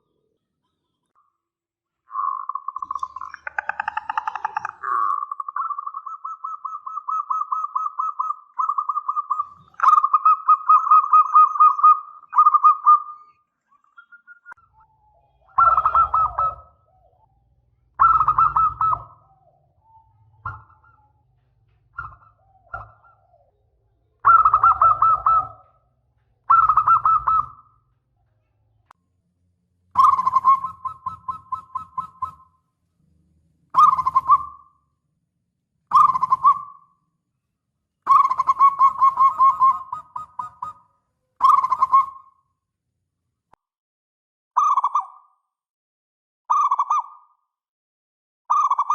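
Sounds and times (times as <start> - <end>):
dove cooing: 2.1 - 13.3, 14.0 - 27.8, 29.9 - 32.5, 33.7 - 34.7, 35.9 - 36.9, 38.0 - 42.3.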